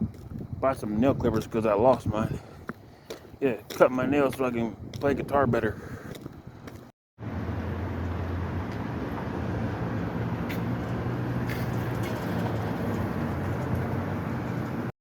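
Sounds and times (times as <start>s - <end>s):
road traffic engine hum: 6.6s - 14.9s.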